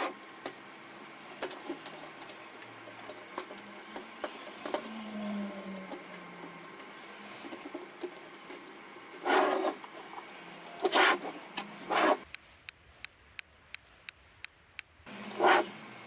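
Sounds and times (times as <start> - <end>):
printer motor hum: 0.0 - 12.3.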